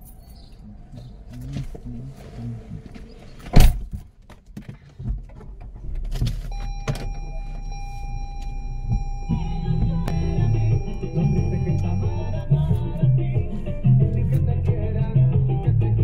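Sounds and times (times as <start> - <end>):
car interior low rumble: 0.0 - 4.0, 4.9 - 16.0
thin steady whine: 6.6 - 12.6
music: 9.4 - 16.0.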